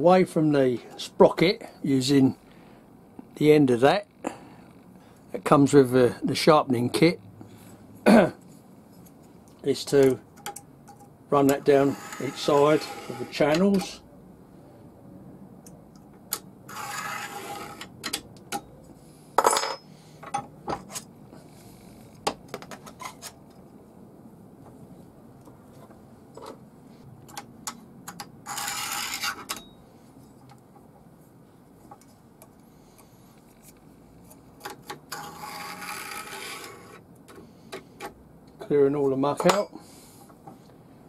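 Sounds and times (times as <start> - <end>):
metal tool scraping guide bar groove: 11.4 - 14.0, 16.7 - 18.0, 28.5 - 29.7, 35.1 - 37.0.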